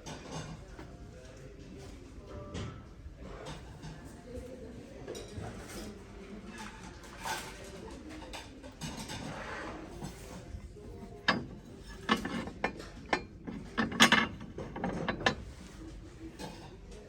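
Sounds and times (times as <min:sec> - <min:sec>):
hard objects clattering: 0:10.7 - 0:15.7.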